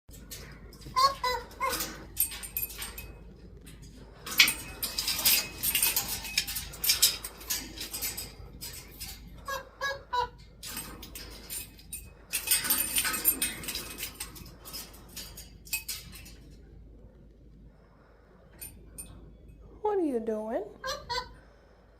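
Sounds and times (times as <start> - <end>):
parrot scrabbling and rattling: 0.1 - 16.7.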